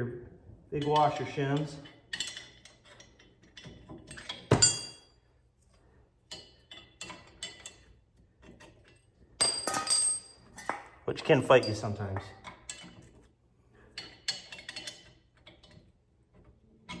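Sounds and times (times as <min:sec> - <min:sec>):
steel washers clinking on metal: 0:00.8 - 0:05.2, 0:09.4 - 0:13.2
sharp ringing clinks: 0:04.5 - 0:05.1.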